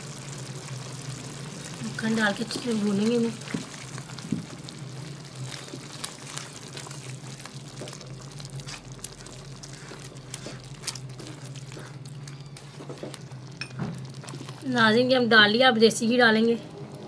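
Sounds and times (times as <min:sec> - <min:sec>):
chicken sizzling in butter: 0:00.0 - 0:15.3
low steady hum: 0:00.0 - 0:17.0
spatula stirring food: 0:02.4 - 0:15.0.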